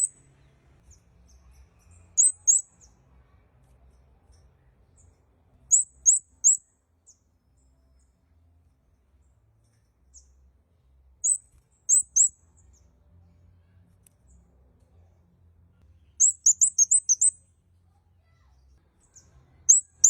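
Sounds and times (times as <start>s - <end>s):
bird chirping: 0.0s - 3.0s, 3.9s - 8.2s, 9.6s - 13.0s, 15.8s - 17.6s, 19.0s - 20.0s.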